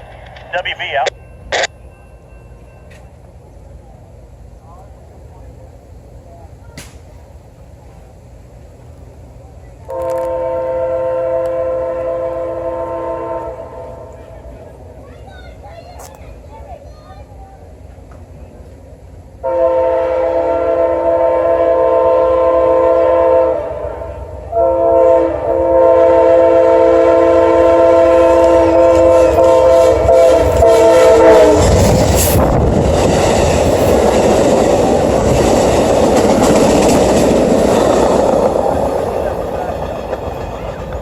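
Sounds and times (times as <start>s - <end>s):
train rushing past: 0.0s - 41.0s
locomotive horn blasts: 9.9s - 14.2s, 19.4s - 31.9s
wheels clattering over rail joints: 31.7s - 41.0s.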